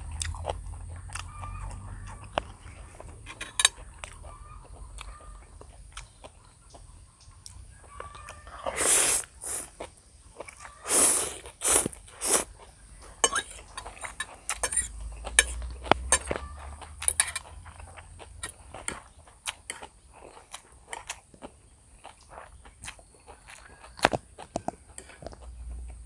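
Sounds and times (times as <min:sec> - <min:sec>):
person chewing: 0:00.0 - 0:06.8, 0:07.4 - 0:26.0
person slurping noodles: 0:08.7 - 0:09.8, 0:10.8 - 0:12.5
utensils clicking against bowl: 0:17.0 - 0:17.5.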